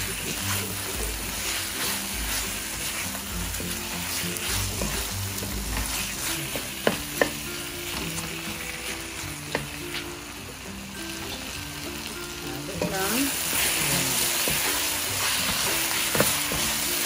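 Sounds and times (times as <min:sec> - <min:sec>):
wooden spatula stirring and scraping: 0:00.0 - 0:10.3, 0:12.8 - 0:17.0
chicken sizzling in a pan: 0:00.0 - 0:17.0
spatula knocking against pan: 0:04.8 - 0:08.0.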